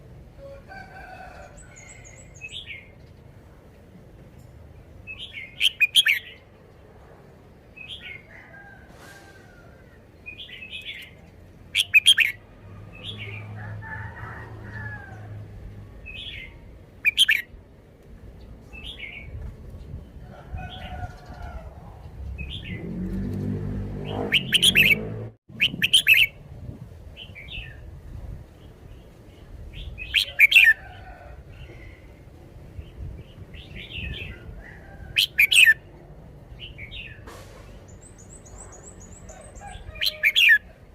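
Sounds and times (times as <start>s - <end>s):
bulbul singing: 5.1s - 6.4s, 11.8s - 12.4s, 24.0s - 26.4s.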